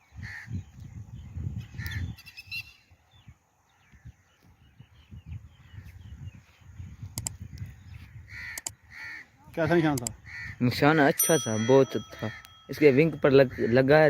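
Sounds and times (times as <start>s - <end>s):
crow cawing: 8.3s - 9.5s, 10.2s - 10.6s, 13.4s - 14.0s.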